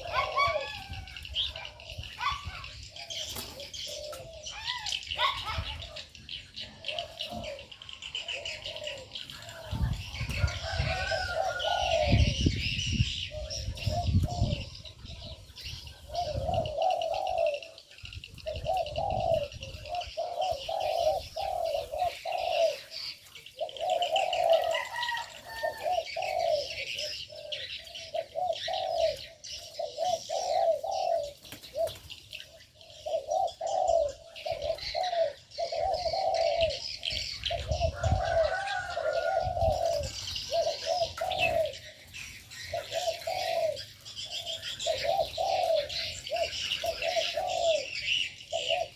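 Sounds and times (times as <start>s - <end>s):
doves cooing: 0.0s - 48.9s
small birds chirping: 0.0s - 48.9s.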